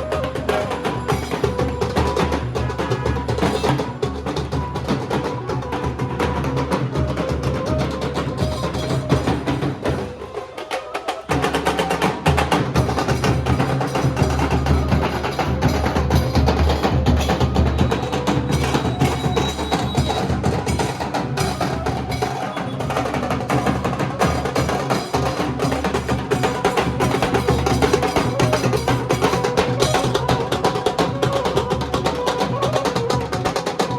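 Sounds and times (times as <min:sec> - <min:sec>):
barrel drums beaten with sticks: 0:11.3 - 0:33.9.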